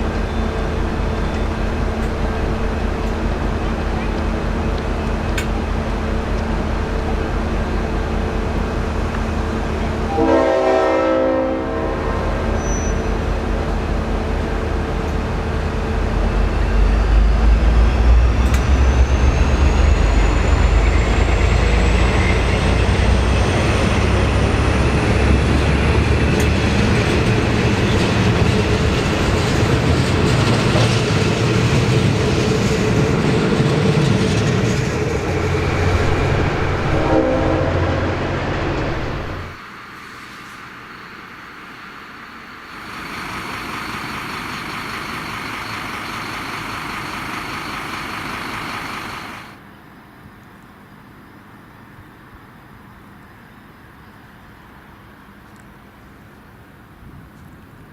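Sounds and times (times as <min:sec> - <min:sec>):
locomotive engine humming: 0:00.0 - 0:39.9, 0:40.7 - 0:49.7
train horn blast: 0:10.1 - 0:13.1, 0:36.0 - 0:39.6
rising whine: 0:15.0 - 0:30.0, 0:31.7 - 0:39.7.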